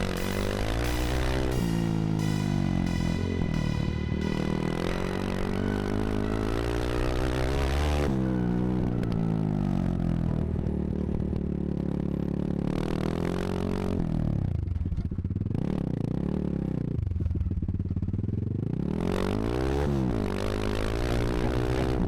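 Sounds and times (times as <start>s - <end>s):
dirt bike engine revving: 0.0s - 9.0s.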